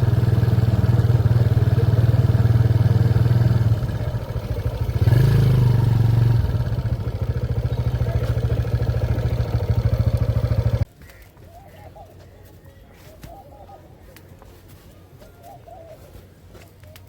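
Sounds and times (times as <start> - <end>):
motorcycle engine running: 0.0 - 10.9.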